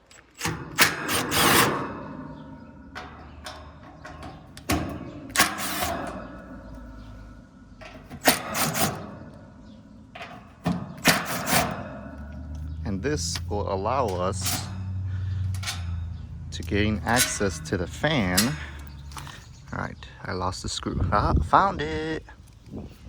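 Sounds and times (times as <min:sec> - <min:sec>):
hand tool clicking on bolts: 0:00.0 - 0:02.1, 0:03.0 - 0:07.1, 0:07.8 - 0:09.2, 0:10.2 - 0:13.5, 0:14.1 - 0:19.4
metal scraping rasps: 0:00.0 - 0:19.8.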